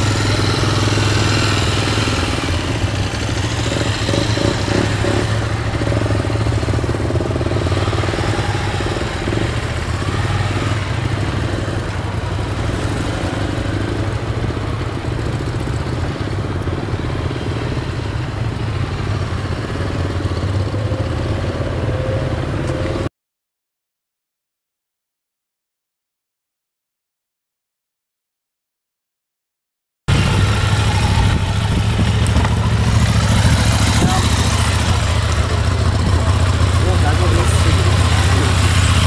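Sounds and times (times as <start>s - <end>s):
motorcycle engine running: 0.0s - 23.1s, 30.1s - 39.0s.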